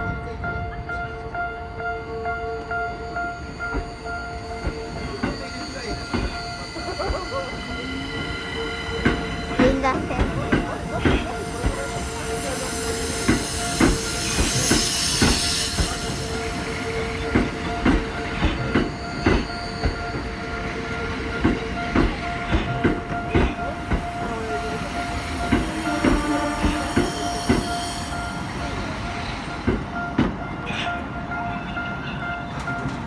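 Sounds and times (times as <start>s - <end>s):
steady high ringing tones: 1.8s - 30.2s
train wheels clacking over rail joints: 4.6s - 30.4s.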